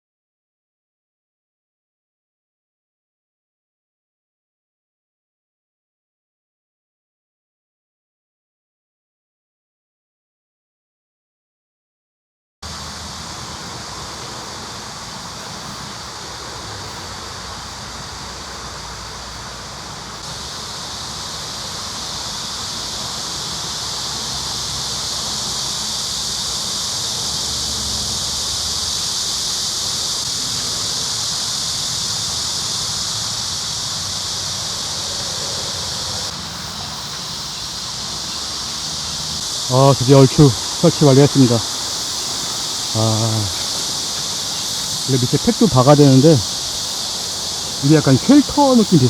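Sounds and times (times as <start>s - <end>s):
insect chorus buzzing: 12.6s - 49.0s.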